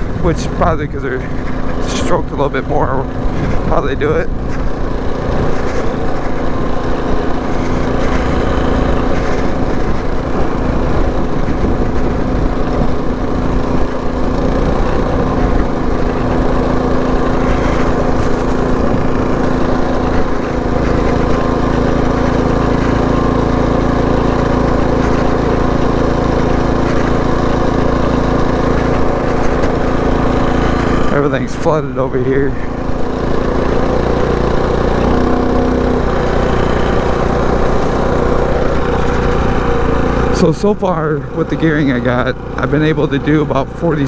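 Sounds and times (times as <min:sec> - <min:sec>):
mini bike engine running: 0:00.0 - 0:44.0.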